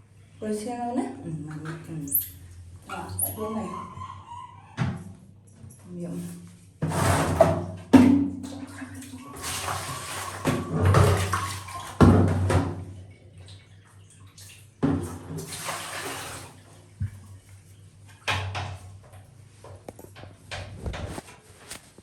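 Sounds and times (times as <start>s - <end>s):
water splashing and sloshing: 4.8s - 22.0s.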